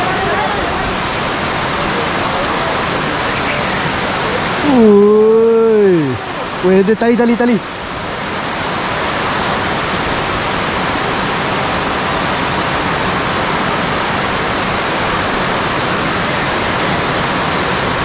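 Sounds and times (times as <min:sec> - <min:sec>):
heavy rain on a pond: 0:00.0 - 0:18.0.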